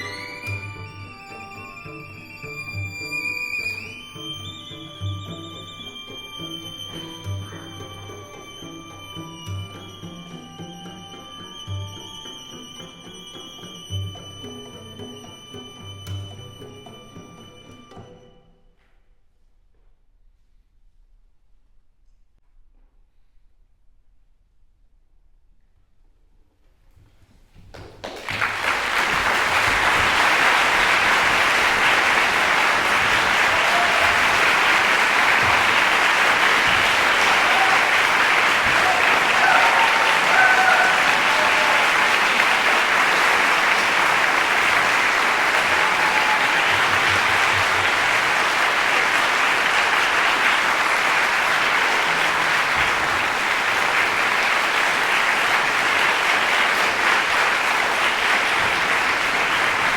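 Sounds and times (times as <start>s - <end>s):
audience applauding: 0.0s - 1.9s, 27.7s - 59.9s
crowd shouting: 29.2s - 49.0s.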